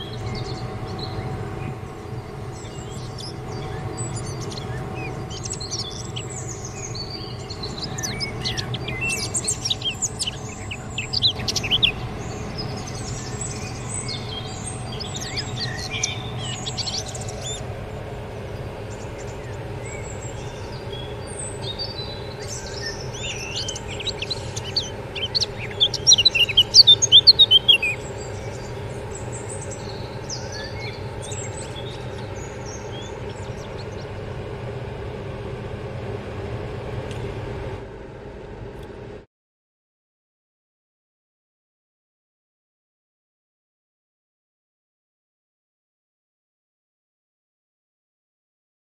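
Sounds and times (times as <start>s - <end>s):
birds twittering: 0.0s - 37.4s
steady low hum: 0.0s - 39.3s.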